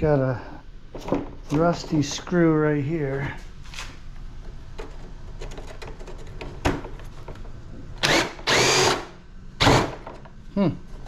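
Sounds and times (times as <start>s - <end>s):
power drill backing out screw: 8.0s - 10.2s.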